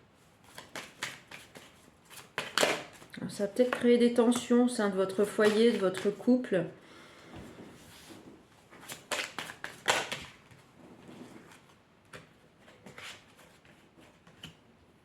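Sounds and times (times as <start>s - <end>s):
paper rustling and tapping: 0.5s - 3.0s, 8.8s - 10.6s.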